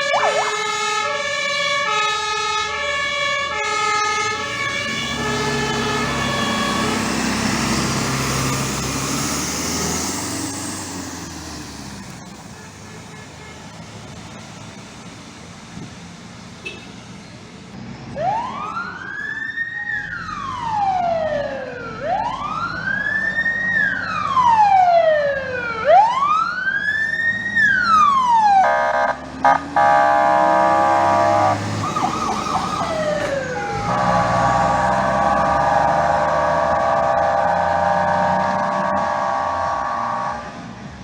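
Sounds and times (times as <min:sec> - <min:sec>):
fire engine siren wailing: 0:00.0 - 0:41.0
blaring horn tone: 0:03.4 - 0:14.1, 0:28.5 - 0:40.6.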